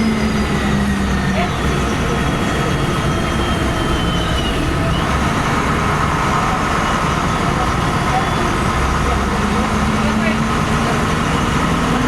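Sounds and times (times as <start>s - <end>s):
bus engine rumbling: 0.0s - 12.0s.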